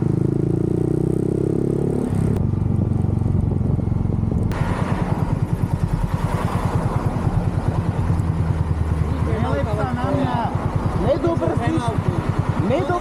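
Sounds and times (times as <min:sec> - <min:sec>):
motorcycle engine running: 0:00.0 - 0:13.0
rushing wind noise: 0:01.6 - 0:08.8.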